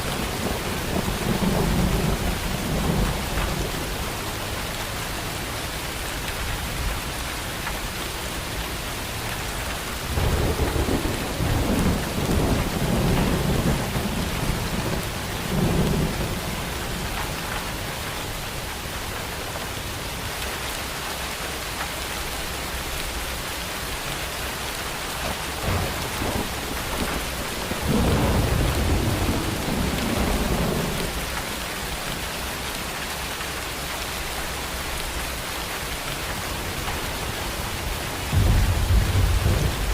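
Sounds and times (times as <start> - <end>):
thunder rumbling: 0.0 - 5.5, 10.0 - 18.8, 25.2 - 32.2, 36.0 - 39.9
steady rain falling: 0.0 - 39.9.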